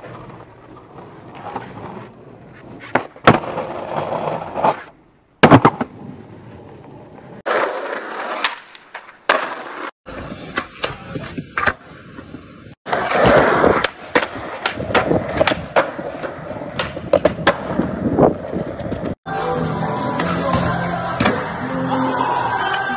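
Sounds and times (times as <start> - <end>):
skateboard wheels rolling on concrete: 0.0 - 22.9
skateboards clacking: 7.4 - 19.2.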